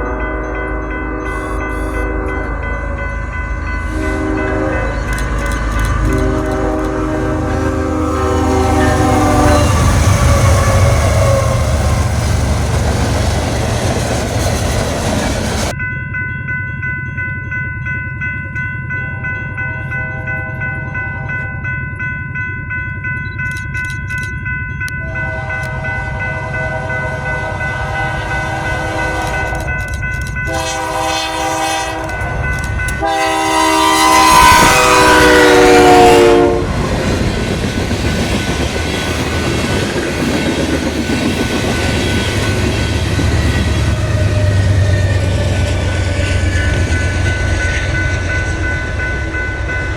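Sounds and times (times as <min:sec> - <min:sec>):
locomotive horn chords: 0:00.0 - 0:13.1, 0:25.0 - 0:29.8, 0:30.4 - 0:36.9
passing train rumble: 0:00.0 - 0:49.9.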